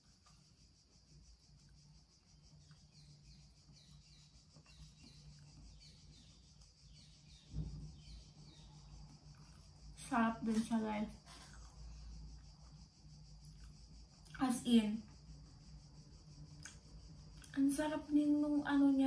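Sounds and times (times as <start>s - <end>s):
high insect drone: 0.0s - 19.0s
small birds chirping: 0.1s - 19.0s
soft low bump: 7.4s - 8.2s.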